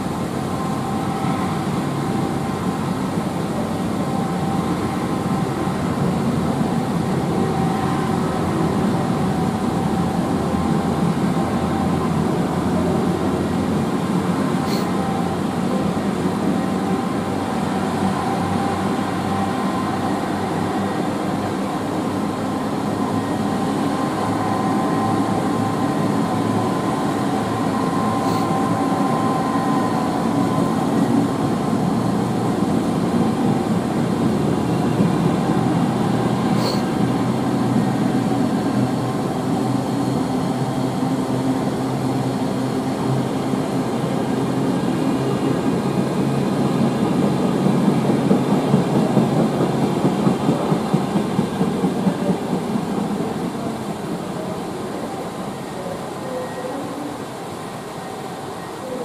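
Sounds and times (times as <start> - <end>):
faint steady whine: 0.0 - 59.0
train wheel and rail noise: 0.0 - 59.0
rhythmic wheel clatter: 46.8 - 53.9.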